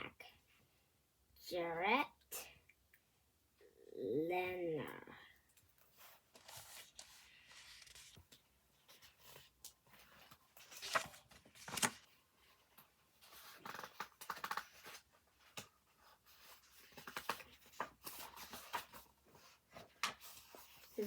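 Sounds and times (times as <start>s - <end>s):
book pages rustling and turning: 5.9s - 12.2s, 12.8s - 21.0s.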